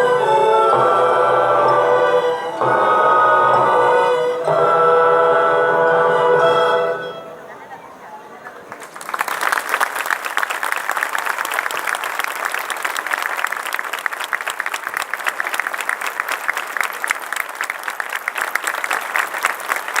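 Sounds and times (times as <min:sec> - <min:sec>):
audience applauding: 0:08.6 - 0:20.0.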